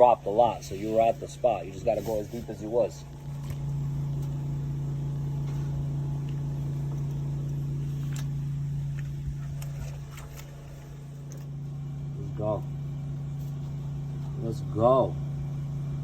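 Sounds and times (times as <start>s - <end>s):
sewer jetter humming: 0.0s - 16.0s.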